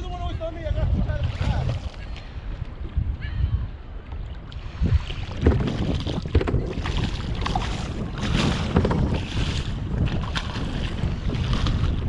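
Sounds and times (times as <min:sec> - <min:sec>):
wind buffeting microphone: 0:00.0 - 0:12.0
water splashing: 0:00.9 - 0:02.0, 0:04.3 - 0:12.0.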